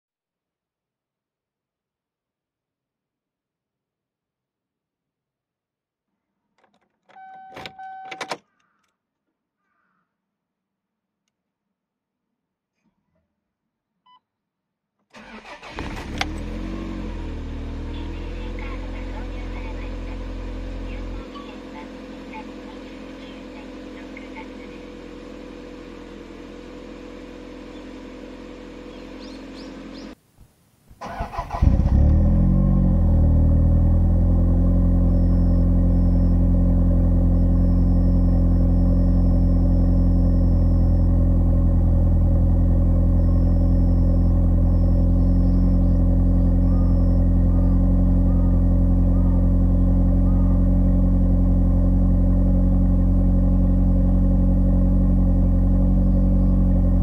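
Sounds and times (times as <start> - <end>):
car engine cranking and idling: 15.1 - 30.2, 31.0 - 57.0
low hum: 31.5 - 57.0.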